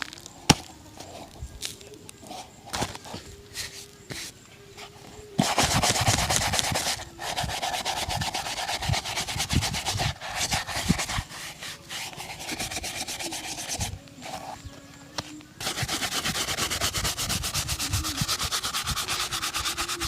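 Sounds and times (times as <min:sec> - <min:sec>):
brush buffing leather shoe: 0:05.4 - 0:14.6, 0:15.6 - 0:20.0.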